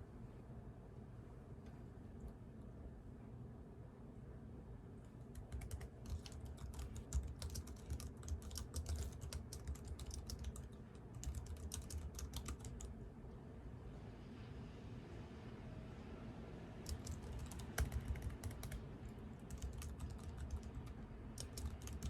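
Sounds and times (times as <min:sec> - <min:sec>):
typing on computer keyboard: 0:05.3 - 0:12.9, 0:16.8 - 0:22.0.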